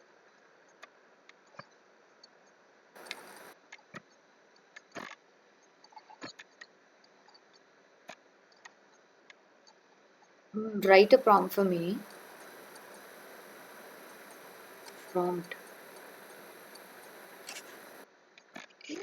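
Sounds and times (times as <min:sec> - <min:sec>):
rustling: 0:11.1 - 0:18.0.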